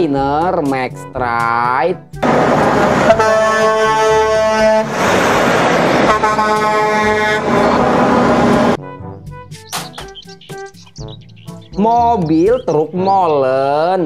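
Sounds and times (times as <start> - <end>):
truck air horn blasts: 2.2 - 8.8
truck driving past: 2.2 - 8.8.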